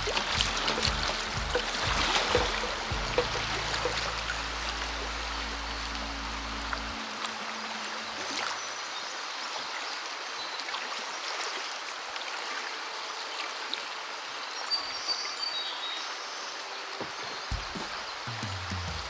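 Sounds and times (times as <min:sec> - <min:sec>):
creek water rushing over riffles: 0:00.0 - 0:19.0.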